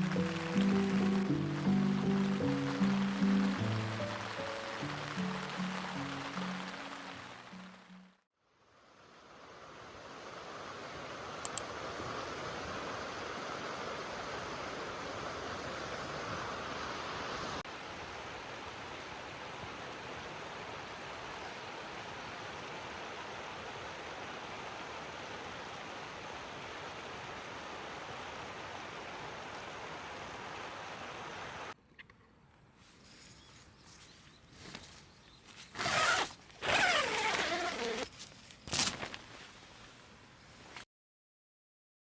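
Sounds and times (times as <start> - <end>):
steady rain falling: 0.0 - 8.2.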